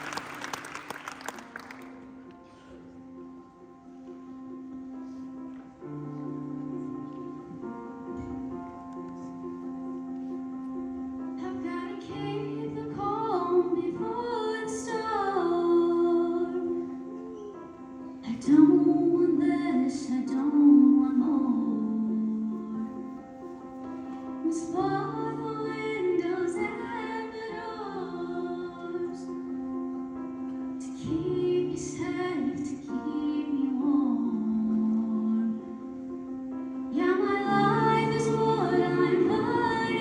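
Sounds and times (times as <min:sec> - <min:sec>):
held accompaniment chords: 0:00.0 - 0:40.0
woman singing slow melody: 0:11.4 - 0:17.2, 0:18.2 - 0:23.2, 0:24.4 - 0:29.6, 0:30.8 - 0:36.0, 0:36.9 - 0:40.0.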